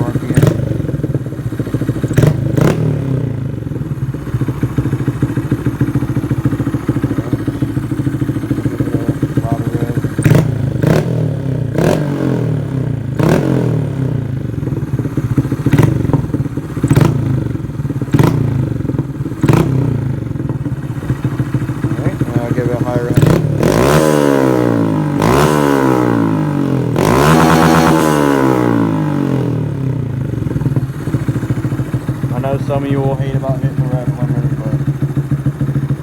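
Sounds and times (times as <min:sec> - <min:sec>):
exhaust pops and crackles: 0:00.0 - 0:03.0, 0:04.7 - 0:11.1, 0:15.0 - 0:24.0, 0:30.3 - 0:36.0
motorcycle engine idling and revving: 0:00.0 - 0:36.0.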